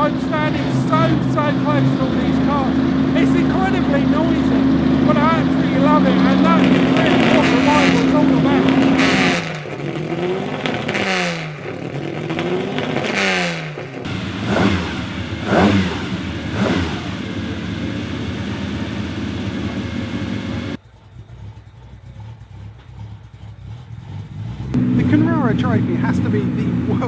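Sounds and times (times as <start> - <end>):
racing car engines revving: 0.0 - 27.0.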